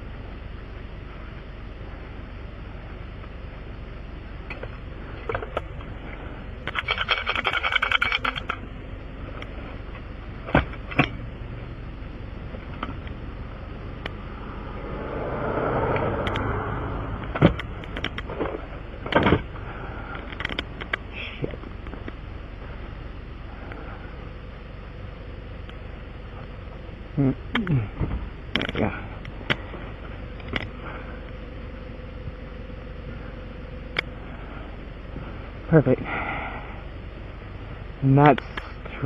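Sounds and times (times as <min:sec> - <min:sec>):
steady low hum: 0:00.0 - 0:39.0
sharp clicks: 0:06.6 - 0:08.6, 0:16.2 - 0:16.5
vehicle passing: 0:13.3 - 0:18.8.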